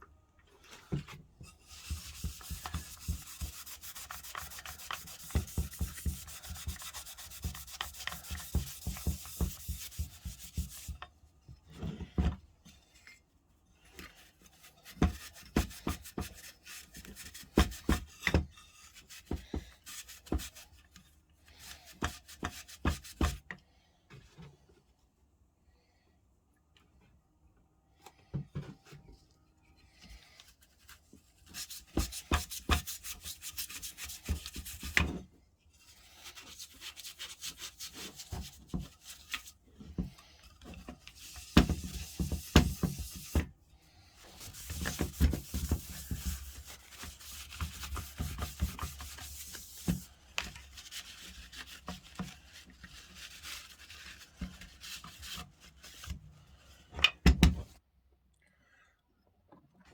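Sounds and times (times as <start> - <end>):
scraping and rubbing strokes: 0.6 - 11.0, 29.9 - 35.1, 35.7 - 56.9.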